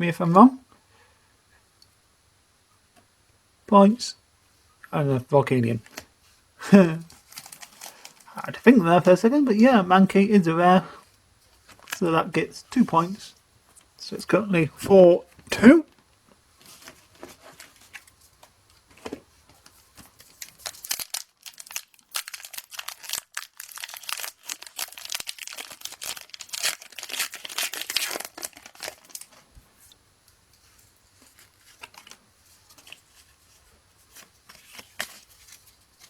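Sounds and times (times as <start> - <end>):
foil wrapper tearing and crinkling: 7.1 - 8.3, 20.1 - 29.4, 31.2 - 33.2, 34.1 - 36.0.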